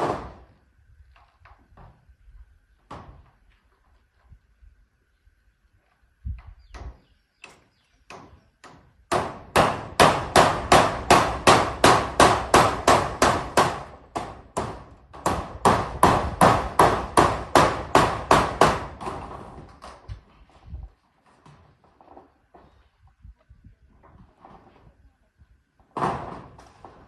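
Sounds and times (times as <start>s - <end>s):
hammer driving nails: 6.7s - 20.0s.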